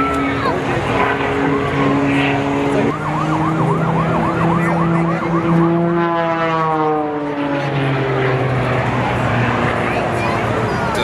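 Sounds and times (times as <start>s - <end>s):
siren yelping: 0.0s - 7.3s.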